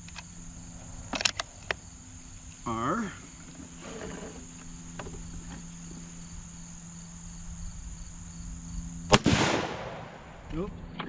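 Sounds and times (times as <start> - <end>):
rifle shot with echo: 9.1 - 10.5.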